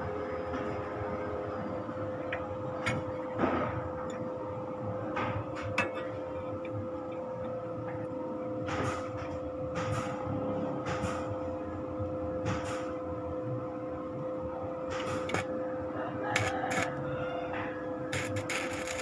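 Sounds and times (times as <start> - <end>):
foam shredding machine humming: 17.8 - 19.0.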